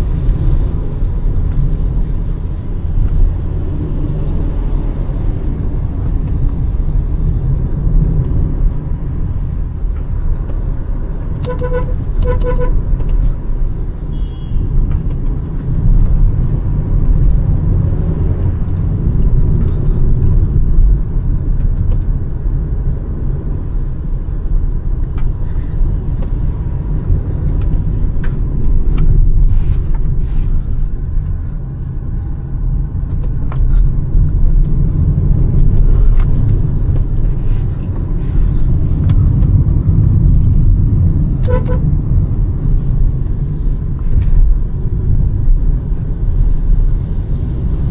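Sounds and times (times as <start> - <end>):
car engine rumble while driving: 0.0 - 47.9
road noise: 0.0 - 47.9
car horn: 11.4 - 12.8, 14.1 - 14.6, 41.4 - 41.9.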